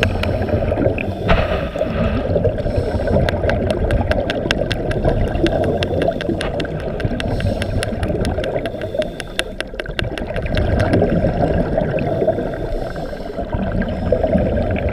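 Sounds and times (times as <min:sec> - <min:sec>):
sharp underwater clicks: 0:00.0 - 0:11.9
underwater rushing of water: 0:00.0 - 0:14.9.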